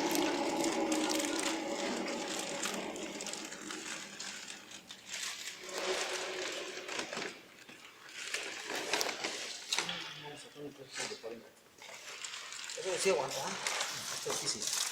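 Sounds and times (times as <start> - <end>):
milling machine motor hum: 0.0 - 7.2
rustling and crinkling: 0.0 - 14.9.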